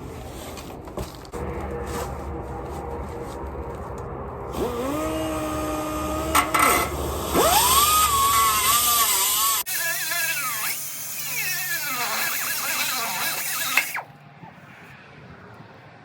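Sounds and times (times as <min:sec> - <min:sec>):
cut-off tool whining through metal: 0:04.5 - 0:14.1.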